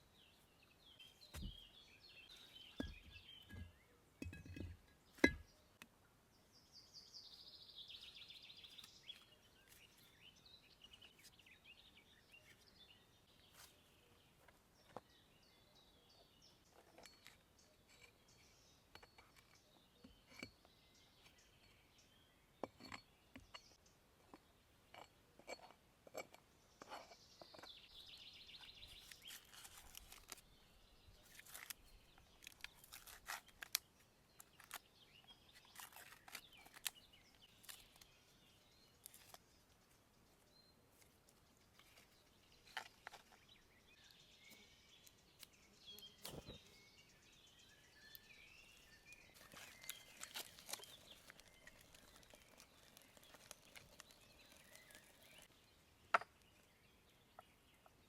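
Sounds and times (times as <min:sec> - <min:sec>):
faint bird chirps: 0:26.8 - 0:58.0
light clicks and crunches: 0:28.9 - 0:30.5, 0:31.2 - 0:34.9, 0:49.1 - 0:55.6.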